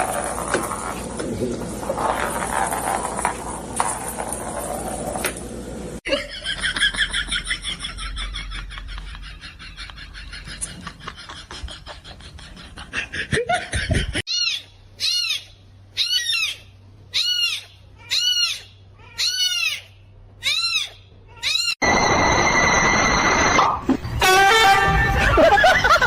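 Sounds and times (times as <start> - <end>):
animal high-pitched call: 14.3 - 24.7.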